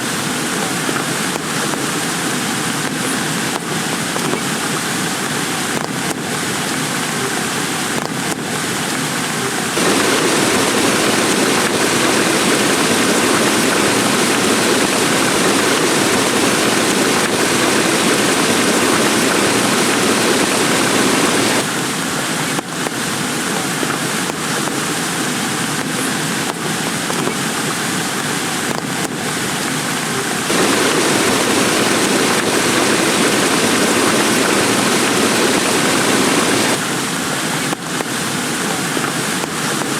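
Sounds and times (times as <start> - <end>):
sharp raindrop hits: 9.8 - 21.6, 30.5 - 36.8
heavy rain hissing: 9.8 - 22.4, 30.5 - 37.2.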